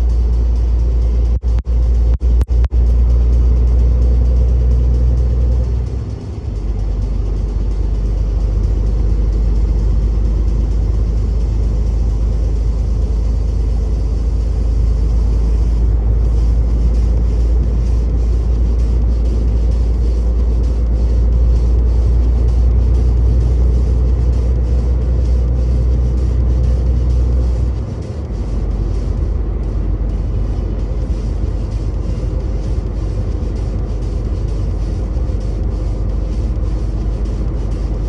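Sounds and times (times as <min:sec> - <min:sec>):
truck engine rumble from cab: 0:00.0 - 0:38.0
tyres on road: 0:00.0 - 0:38.0.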